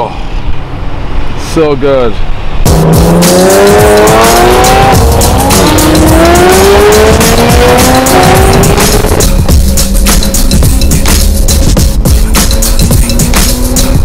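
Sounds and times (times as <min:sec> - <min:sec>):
car engine accelerating: 0:02.6 - 0:09.4.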